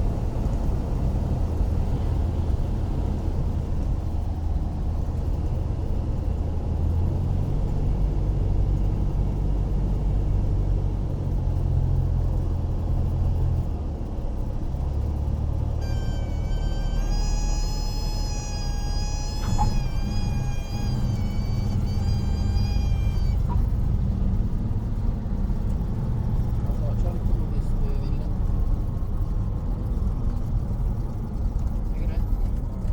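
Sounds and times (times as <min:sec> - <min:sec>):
light aircraft engine rumble: 0:00.0 - 0:32.9
stall warning horn: 0:15.8 - 0:24.1.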